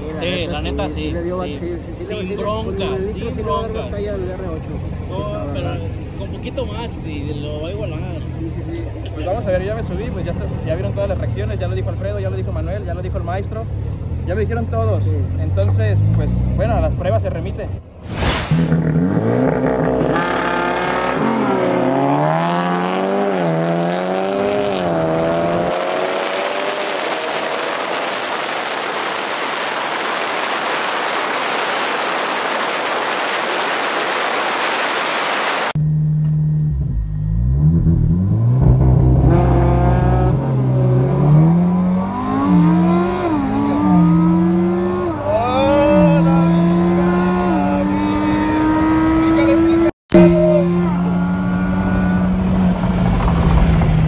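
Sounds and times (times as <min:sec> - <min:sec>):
car engines revving: 0:18.1 - 0:35.8, 0:37.3 - 0:54.0
car engine at full throttle: 0:18.1 - 0:54.0
rushing hiss: 0:26.8 - 0:35.8.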